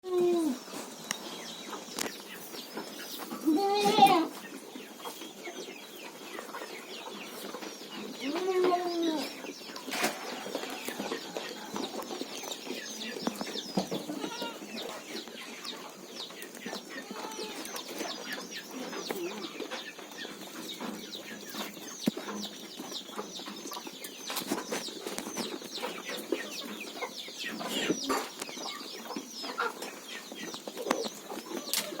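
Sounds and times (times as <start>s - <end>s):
poultry clucking: 0.0s - 32.0s.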